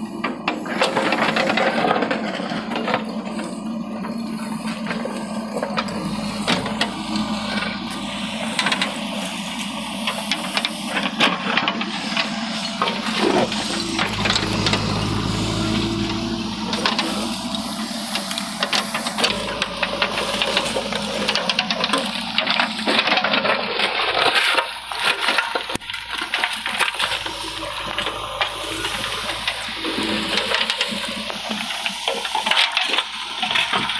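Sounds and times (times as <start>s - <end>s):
engine humming: 0.0s - 33.9s.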